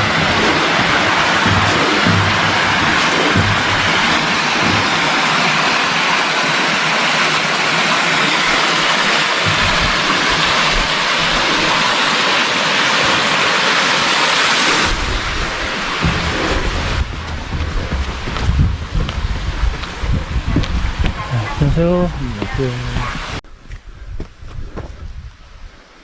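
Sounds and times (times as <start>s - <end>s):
wind rumble on microphone: 0.0s - 5.2s, 9.4s - 11.9s, 14.8s - 26.0s
falling water rushing: 0.0s - 23.4s.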